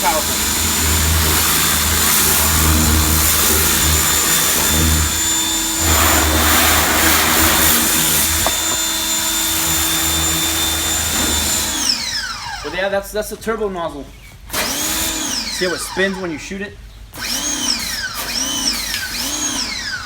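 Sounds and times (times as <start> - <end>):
water jet spray hiss: 0.0 - 8.9
pressure washer motor whine: 0.0 - 12.8.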